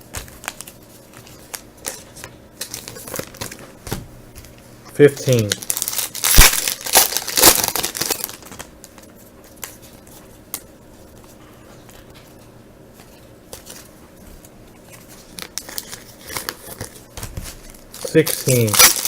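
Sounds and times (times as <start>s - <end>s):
wrapper crinkling and tearing: 0.2s - 3.6s, 5.2s - 9.0s, 15.2s - 19.0s
cards ticking: 18.0s - 19.0s.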